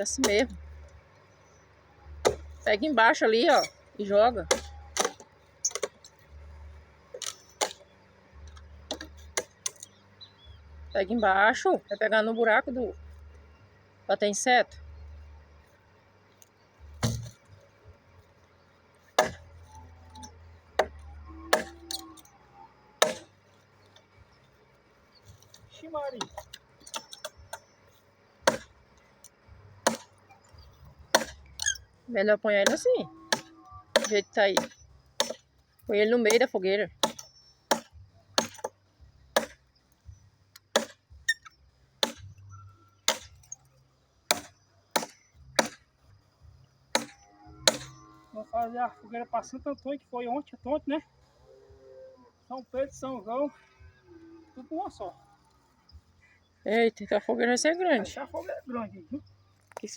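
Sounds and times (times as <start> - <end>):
machete chopping into log: 2.2 - 2.6, 4.4 - 6.0, 7.2 - 7.8, 8.9 - 9.9, 17.0 - 17.4, 19.2 - 22.0, 23.0 - 23.3, 28.4 - 28.7, 29.8 - 30.1, 31.1 - 31.8, 32.6 - 35.4, 37.0 - 38.8, 39.4 - 39.6, 40.7 - 42.3, 43.1 - 43.5, 44.3 - 45.9, 46.9 - 48.0.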